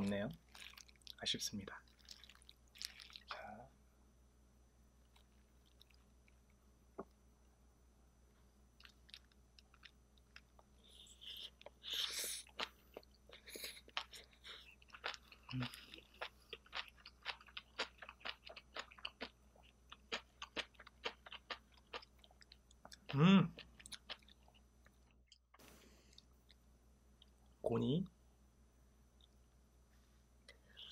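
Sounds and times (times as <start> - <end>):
person chewing crunchy food: 0.4 - 1.2, 1.8 - 3.4, 5.1 - 6.1, 8.8 - 25.1
person humming mm: 23.1 - 23.5.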